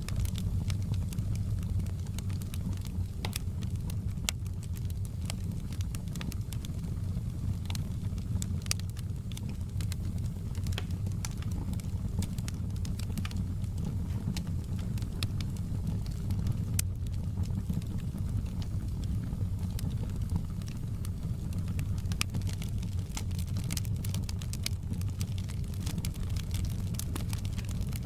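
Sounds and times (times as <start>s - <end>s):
logs crackling in fireplace: 0.0s - 28.0s
low fire rumble: 0.0s - 28.0s.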